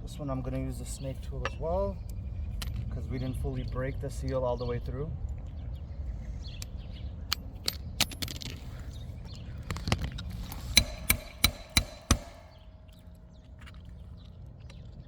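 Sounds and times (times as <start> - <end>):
sharp metal strikes ringing: 10.5 - 13.1.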